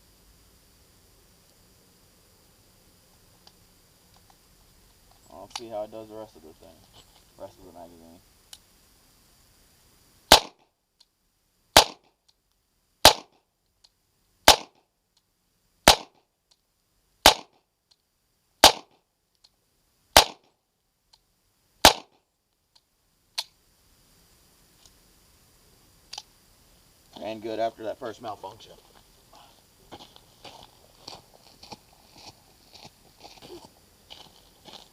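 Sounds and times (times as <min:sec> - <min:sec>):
pistol shots: 0:10.3 - 0:10.6, 0:11.8 - 0:12.0, 0:13.0 - 0:13.3, 0:14.4 - 0:14.8, 0:15.8 - 0:16.2, 0:17.2 - 0:17.5, 0:18.6 - 0:18.9, 0:20.2 - 0:20.4, 0:21.8 - 0:22.1.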